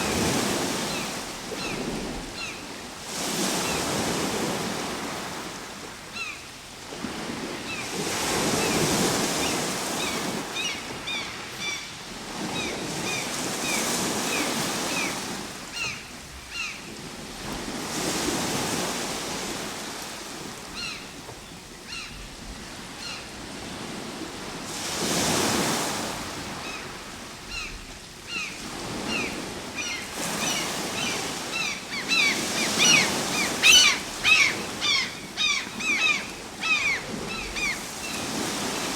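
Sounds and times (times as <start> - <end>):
ocean waves breaking on shore: 0.0 - 38.9
short bird calls: 29.2 - 37.8.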